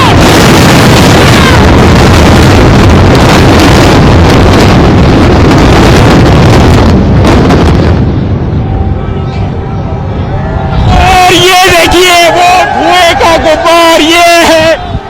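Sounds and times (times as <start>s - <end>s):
explosive demolition blast and collapse: 0.0s - 8.8s.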